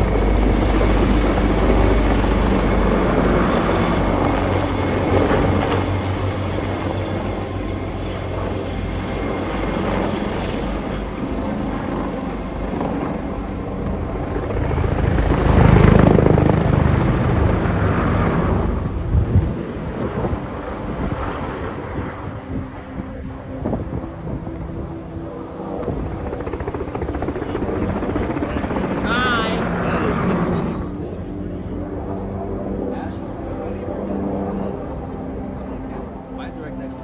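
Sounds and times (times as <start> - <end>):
helicopter rotor and engine: 0.0 - 37.0.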